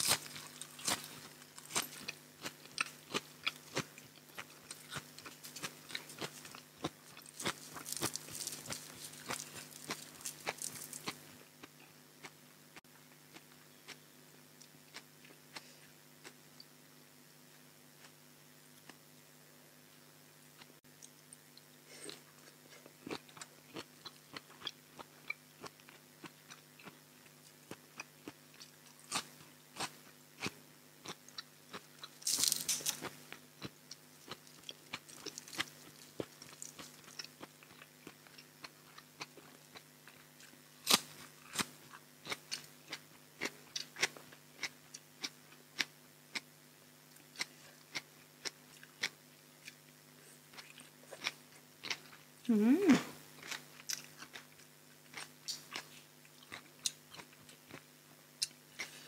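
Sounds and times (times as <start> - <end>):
chewing and crunching: 0.0 - 12.4, 20.8 - 46.5, 47.1 - 52.4, 53.3 - 59.0.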